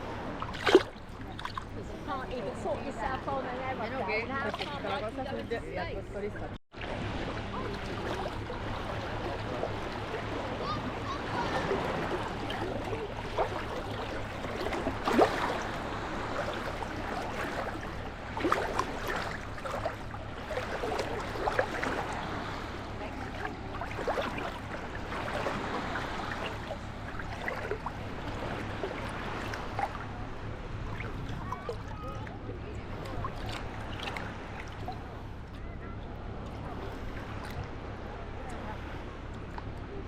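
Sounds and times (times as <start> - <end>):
sharp water splashes: 0.0 - 2.1, 6.7 - 35.3
small waves lapping at shore: 0.0 - 40.0.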